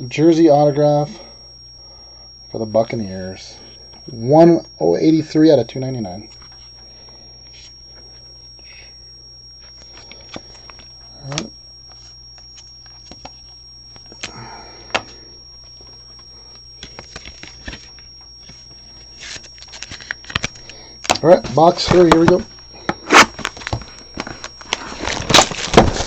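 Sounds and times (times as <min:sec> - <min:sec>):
faint hum: 0:00.0 - 0:26.0
trading cards handled: 0:09.6 - 0:21.2.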